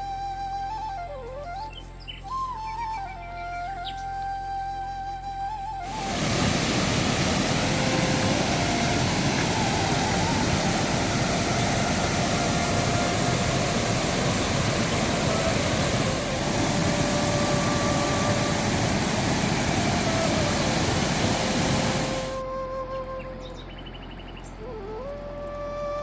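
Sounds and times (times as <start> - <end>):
slow background music: 0.0 - 26.0
heavy rain hissing: 5.9 - 22.4.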